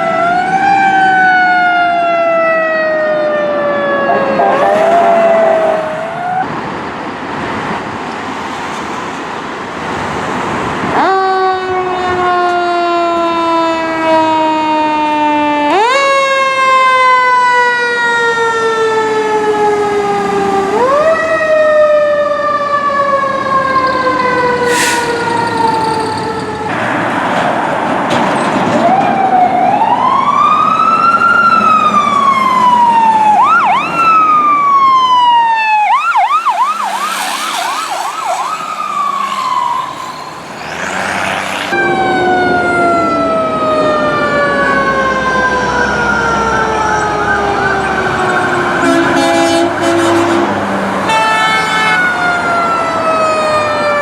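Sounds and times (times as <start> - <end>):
electronic siren wailing: 0.0 - 6.5, 29.0 - 40.9, 41.7 - 50.4
rushing noise: 4.0 - 10.8, 35.7 - 42.0.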